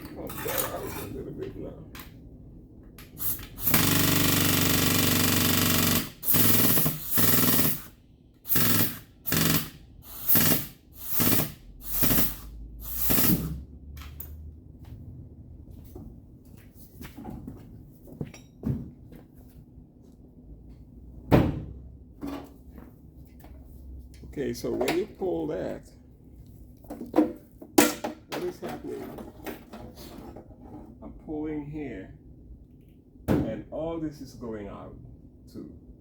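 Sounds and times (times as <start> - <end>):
electric welder buzzing and crackling: 8.5 - 13.5.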